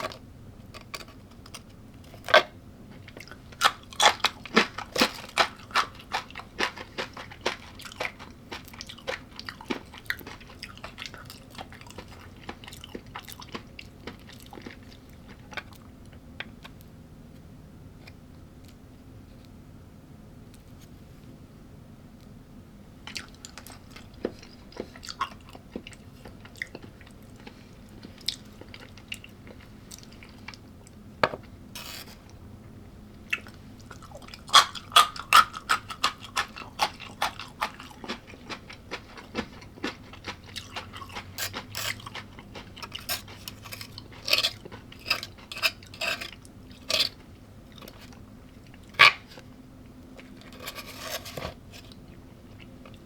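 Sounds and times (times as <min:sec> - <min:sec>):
person chewing crunchy food: 0:00.0 - 0:16.9, 0:23.1 - 0:32.4, 0:33.2 - 0:53.0.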